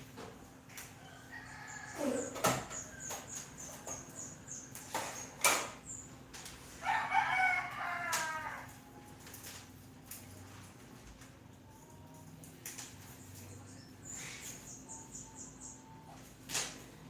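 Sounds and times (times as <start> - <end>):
rooster crowing: 1.0 - 3.1, 6.8 - 8.8.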